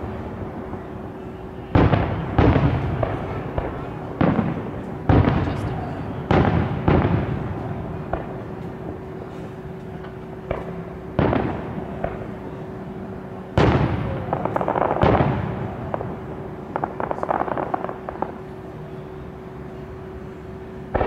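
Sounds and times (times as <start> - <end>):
firework crackling: 0.0 - 12.6, 13.2 - 18.8
small firework pops: 8.1 - 8.8, 9.9 - 12.3.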